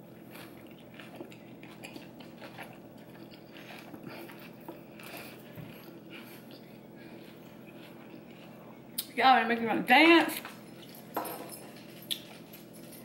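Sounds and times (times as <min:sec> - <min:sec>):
person chewing crunchy food: 0:00.0 - 0:09.0.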